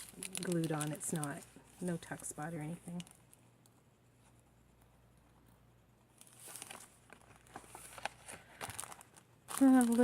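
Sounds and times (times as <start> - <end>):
paper pages rustling: 6.1 - 10.0.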